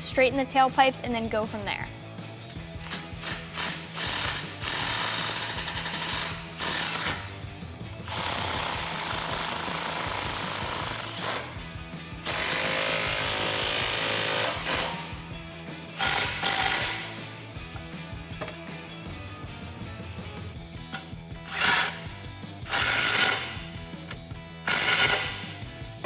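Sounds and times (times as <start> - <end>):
impact wrench hammering: 2.5 - 7.3, 8.0 - 11.6, 12.2 - 15.3, 16.0 - 17.3, 20.9 - 25.6.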